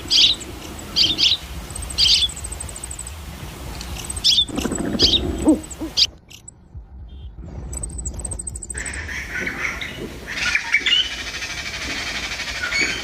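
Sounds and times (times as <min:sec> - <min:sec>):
lower sliding bird calls: 0:00.0 - 0:06.1, 0:08.1 - 0:13.0
sharp bird calls: 0:00.0 - 0:06.2, 0:07.8 - 0:13.0
fast high ticking trill: 0:00.0 - 0:06.6, 0:07.6 - 0:09.4.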